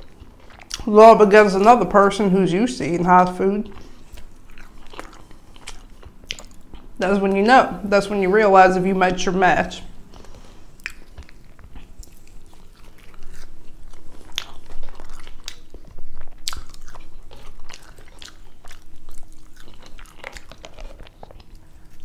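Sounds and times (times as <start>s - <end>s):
person chewing fries: 0.0s - 0.9s, 3.2s - 7.0s, 9.9s - 22.0s.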